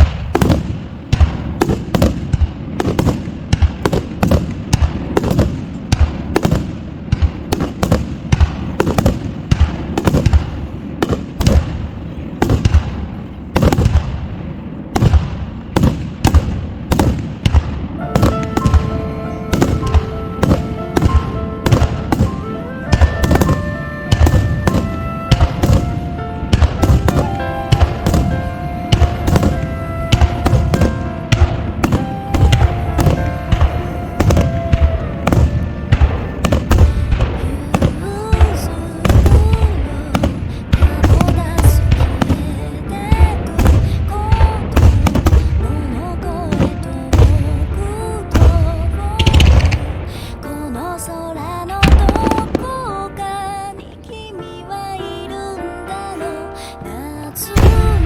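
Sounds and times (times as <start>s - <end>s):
fireworks booming and cracking: 0.0s - 54.2s, 57.5s - 58.0s
music with long held notes: 17.9s - 58.0s.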